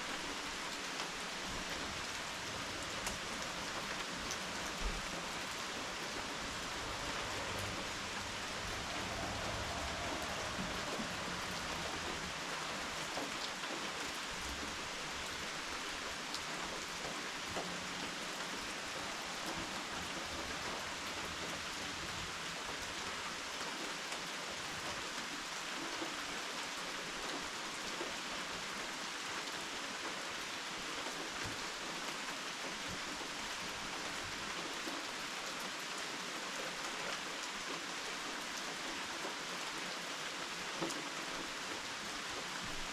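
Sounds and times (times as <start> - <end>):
steady rain falling: 0.0 - 42.9
raindrops ticking: 0.6 - 23.2.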